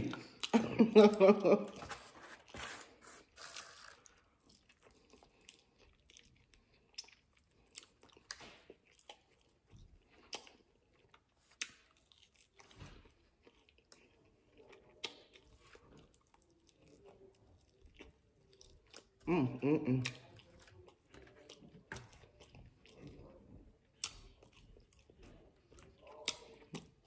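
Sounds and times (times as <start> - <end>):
chewing fried food: 0.0 - 27.0.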